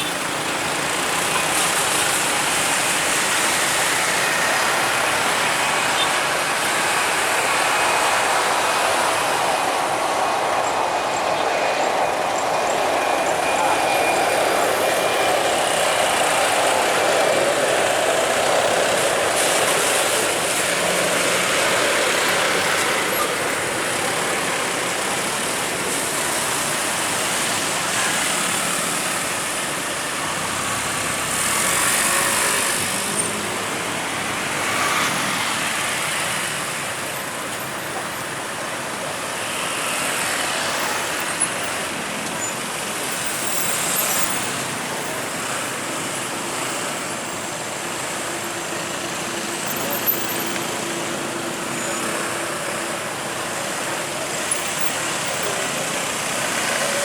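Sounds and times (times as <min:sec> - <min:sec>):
engine roar: 0:00.1 - 0:36.8.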